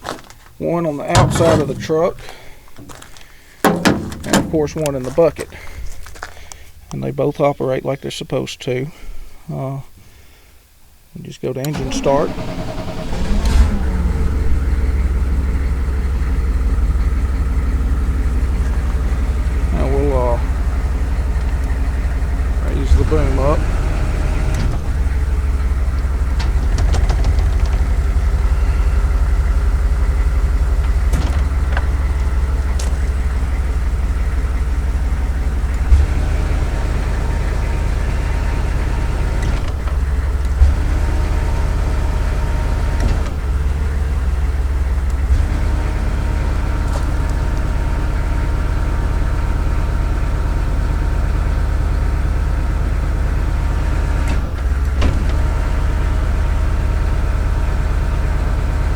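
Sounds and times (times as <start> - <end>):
diesel truck engine idling: 0.0 - 7.4, 11.6 - 58.9
hydraulic whine shifting tone: 1.0 - 3.0, 11.7 - 51.4.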